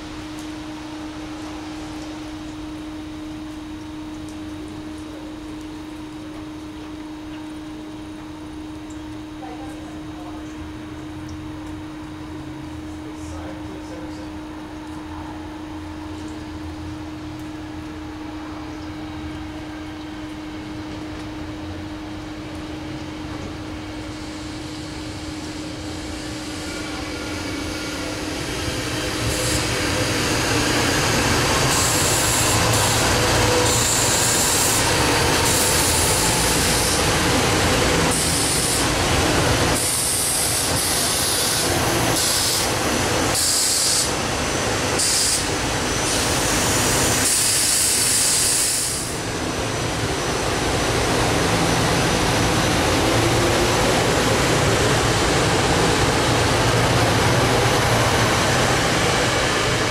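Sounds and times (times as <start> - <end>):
electric train rail noise: 0.0 - 59.9
high hiss: 24.0 - 49.3.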